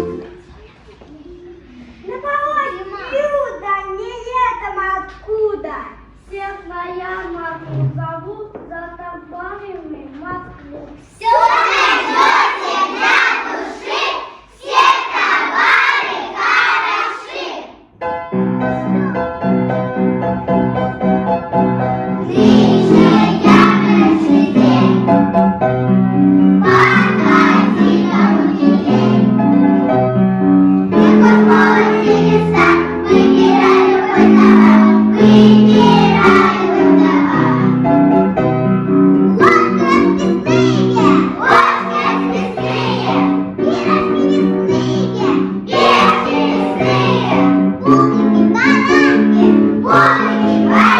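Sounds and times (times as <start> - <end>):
piano accompaniment: 0.0 - 0.5, 17.9 - 50.9
children chanting: 11.1 - 17.8, 22.2 - 25.1, 26.6 - 29.3, 30.9 - 37.8, 39.4 - 50.9.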